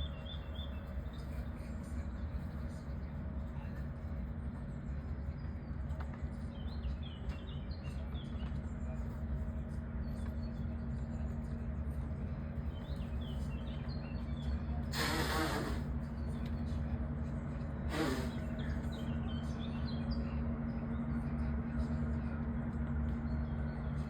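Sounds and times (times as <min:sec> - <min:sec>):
small birds chirping: 0:00.0 - 0:01.5
steady low hum: 0:00.0 - 0:24.0.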